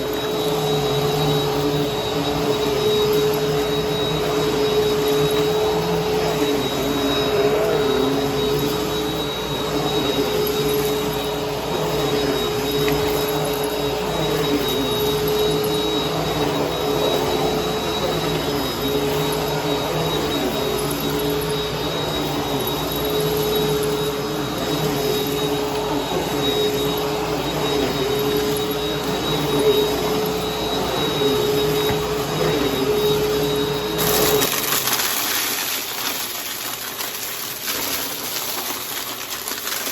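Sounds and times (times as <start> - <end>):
vacuum cleaner humming: 0.0 - 39.9
debris crackling in vacuum: 34.0 - 39.9.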